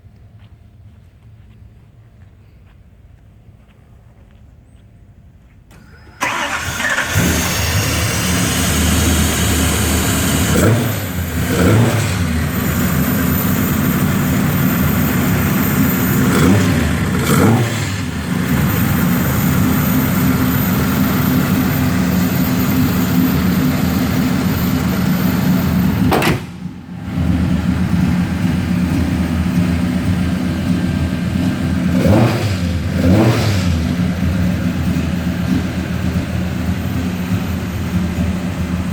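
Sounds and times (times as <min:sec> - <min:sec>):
engine starting: 0:05.7 - 0:09.7
engine revving blips: 0:05.7 - 0:38.8
car engine idling: 0:06.0 - 0:38.9.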